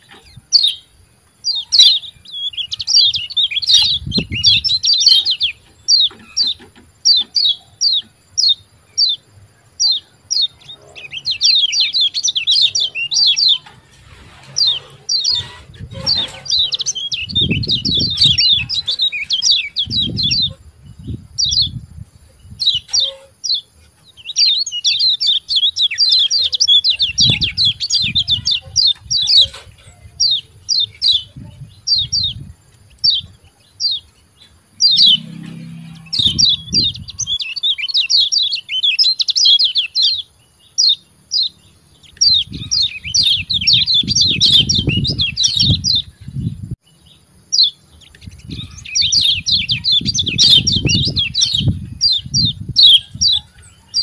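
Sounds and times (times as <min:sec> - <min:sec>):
bird chirping and chattering: 0:00.0 - 0:54.0
dull low rumbles: 0:34.8 - 0:37.3.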